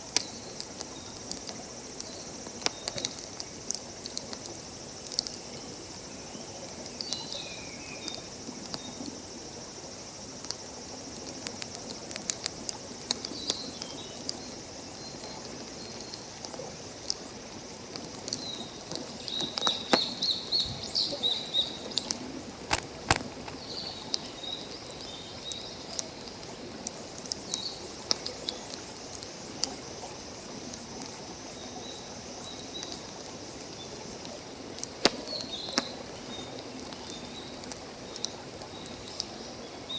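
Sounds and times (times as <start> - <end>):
campfire crackling and popping: 0.0 - 9.6, 10.3 - 20.5, 21.8 - 31.2, 32.7 - 39.5
steady outdoor hiss: 0.0 - 39.9
small birds chirping: 18.3 - 22.2.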